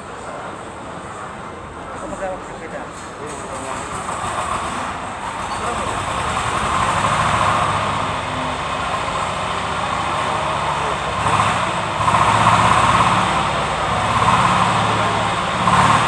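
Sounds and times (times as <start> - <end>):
diesel engine running: 3.3 - 16.0.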